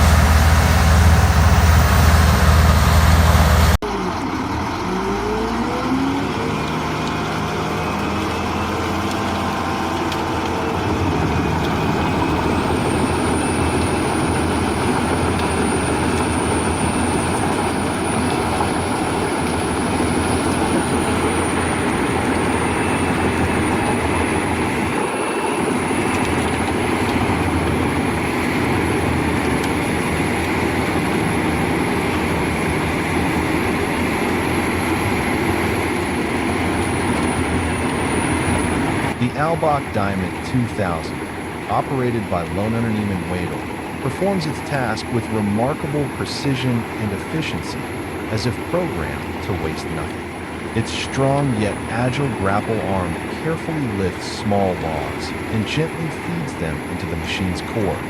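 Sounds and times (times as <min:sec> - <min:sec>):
steady high whine: 0:00.0 - 0:05.8, 0:10.2 - 0:58.0
wood chipper grinding and shredding: 0:00.0 - 0:39.8
diesel engine running under load: 0:00.0 - 0:58.0.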